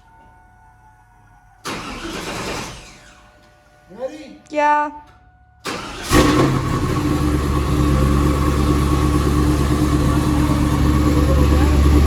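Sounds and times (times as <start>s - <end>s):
car engine starting and idling: 0.9s - 3.4s, 5.6s - 12.0s.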